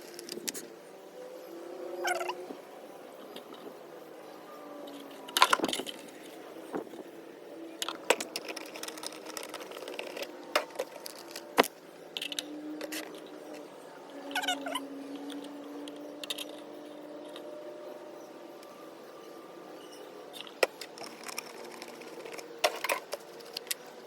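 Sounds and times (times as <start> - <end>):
wavering squeal: 1.4 - 6.5, 12.3 - 22.4.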